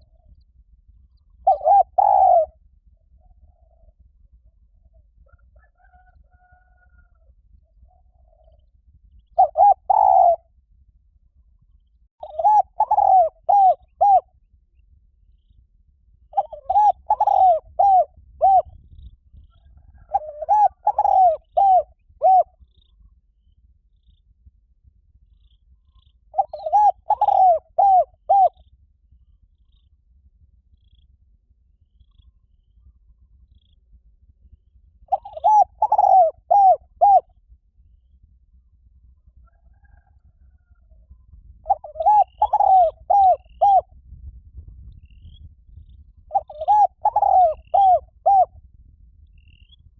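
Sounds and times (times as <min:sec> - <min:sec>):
dove cooing: 0:01.4 - 0:04.0, 0:09.4 - 0:10.4, 0:12.2 - 0:14.3, 0:16.3 - 0:18.8, 0:19.6 - 0:22.6, 0:26.0 - 0:28.6, 0:35.1 - 0:37.3, 0:41.6 - 0:43.9, 0:46.3 - 0:48.6.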